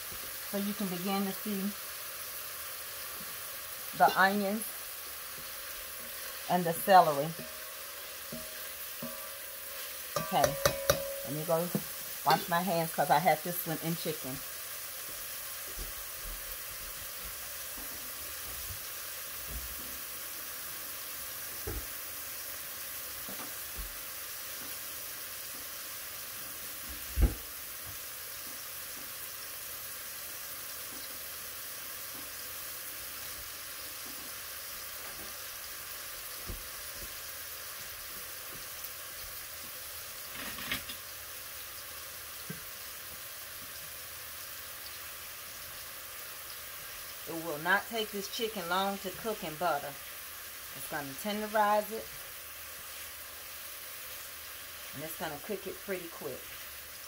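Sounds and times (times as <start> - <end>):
butter sizzling in a pot: 0.0 - 57.0
chicken frying in a skillet: 0.0 - 57.0
loud thump: 27.2 - 27.5.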